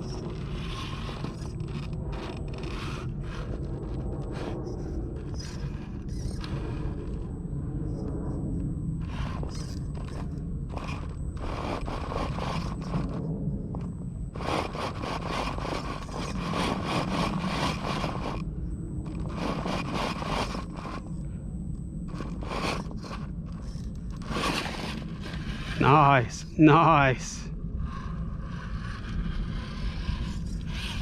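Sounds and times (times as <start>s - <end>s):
toy car tyres scraping rock: 0.0s - 7.2s, 9.0s - 21.2s, 22.0s - 26.1s, 27.9s - 31.0s.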